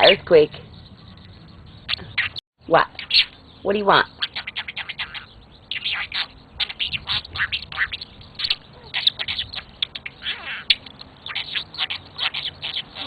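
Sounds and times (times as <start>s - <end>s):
budgie chattering and warbling: 0.0s - 3.4s, 4.0s - 13.0s.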